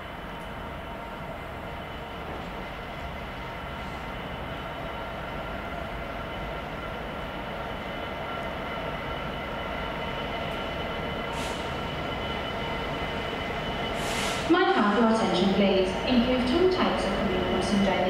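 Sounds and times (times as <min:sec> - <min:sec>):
train humming: 0:00.0 - 0:18.0
short hiss: 0:14.0 - 0:14.5.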